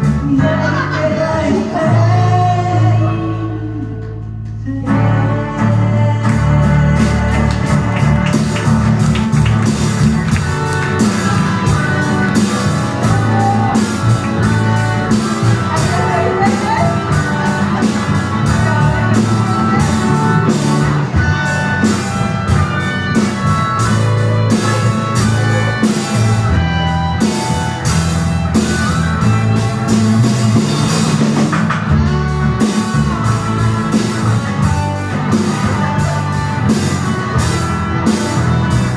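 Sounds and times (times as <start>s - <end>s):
electric guitar: 0.0s - 38.9s
live rock band playing: 0.0s - 38.9s
drum kit beat: 6.2s - 38.9s.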